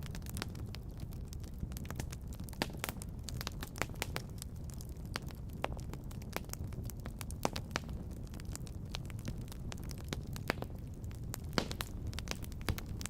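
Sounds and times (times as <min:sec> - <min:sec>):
fire low rumble: 0:00.0 - 0:13.0
wood fire crackling and popping: 0:00.0 - 0:13.0.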